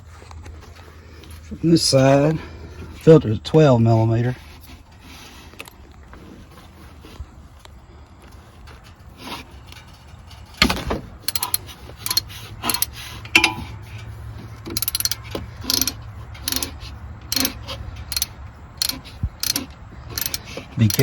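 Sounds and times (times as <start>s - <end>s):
steady low hum: 0.0s - 21.0s
socket ratchet clicking: 11.2s - 21.0s.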